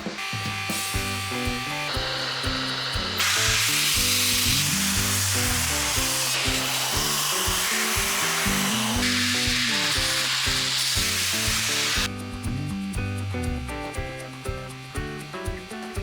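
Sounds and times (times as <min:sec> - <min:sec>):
arc welding hiss: 0:00.0 - 0:12.2
background music with bass: 0:00.0 - 0:16.0.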